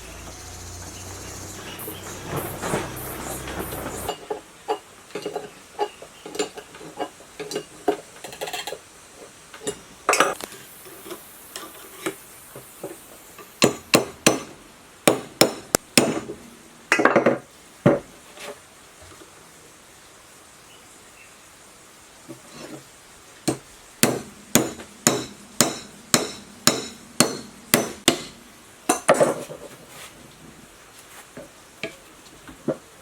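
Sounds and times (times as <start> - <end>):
loud sharp metal strikes: 13.5 - 16.3, 23.5 - 29.2.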